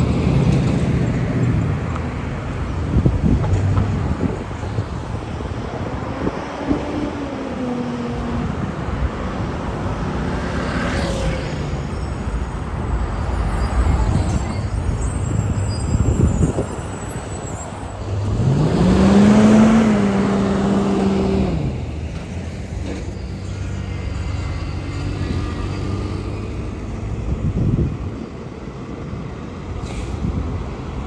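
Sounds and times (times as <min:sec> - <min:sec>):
road traffic going by: 0:00.0 - 0:31.0
passing vehicle engine: 0:17.9 - 0:28.0.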